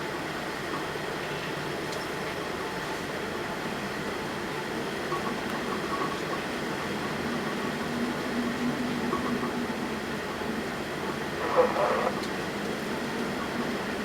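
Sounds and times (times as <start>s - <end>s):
faint hum: 5.1s - 14.0s
storm at sea rushing: 9.7s - 13.9s.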